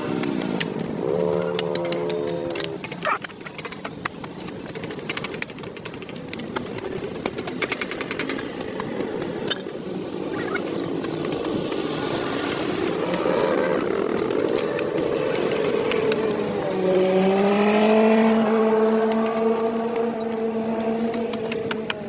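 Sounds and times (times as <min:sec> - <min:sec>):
rapid clicking: 0:00.1 - 0:16.3.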